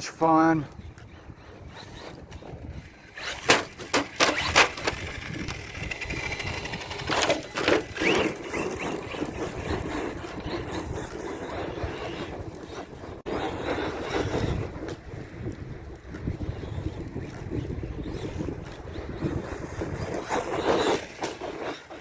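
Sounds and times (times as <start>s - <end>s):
electric motor whining: 0.7s - 14.9s
toy truck hitting ground: 2.0s - 11.1s, 19.7s - 22.0s.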